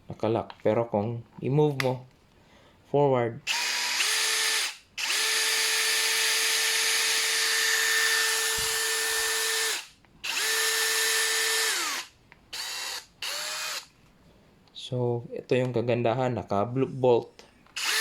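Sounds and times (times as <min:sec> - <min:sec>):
cordless drill motor whine: 0:03.5 - 0:13.9, 0:17.8 - 0:18.0
drill trigger blips: 0:03.5 - 0:13.9, 0:17.8 - 0:18.0.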